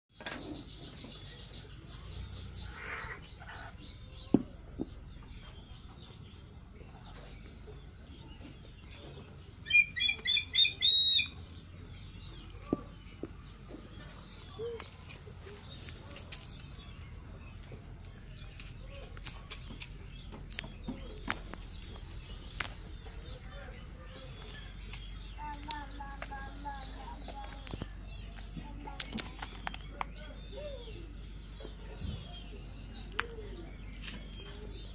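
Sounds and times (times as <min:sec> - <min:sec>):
bird calling shrilly: 0:09.7 - 0:11.4.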